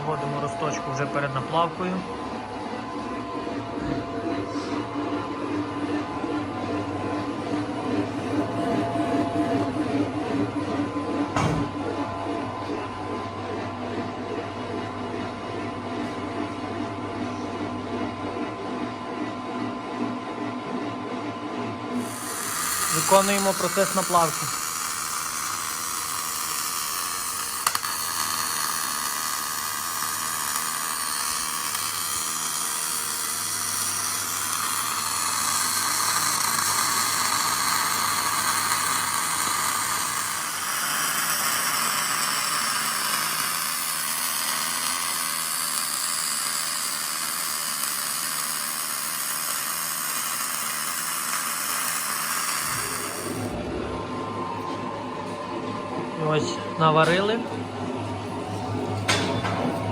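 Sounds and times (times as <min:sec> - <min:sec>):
welding arc hissing and crackling: 0:22.0 - 0:53.5.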